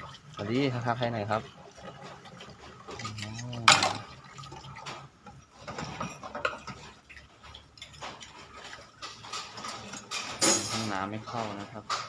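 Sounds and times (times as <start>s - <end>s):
water splashing in sink: 0.0s - 11.9s
dishes clinking: 3.0s - 4.1s, 5.6s - 7.0s, 7.8s - 12.0s.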